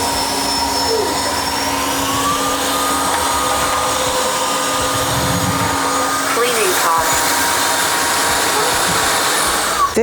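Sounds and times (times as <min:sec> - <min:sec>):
vacuum mop motor whine: 0:00.0 - 0:10.0
rush of suction air: 0:04.9 - 0:06.3.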